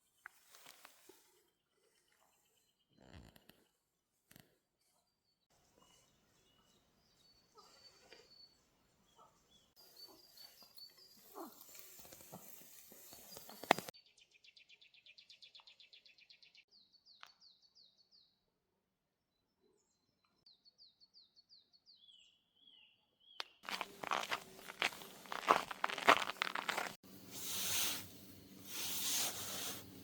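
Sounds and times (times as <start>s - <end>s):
small birds singing: 5.2s - 12.2s, 13.0s - 18.5s, 19.3s - 30.0s
rustling: 23.7s - 30.0s.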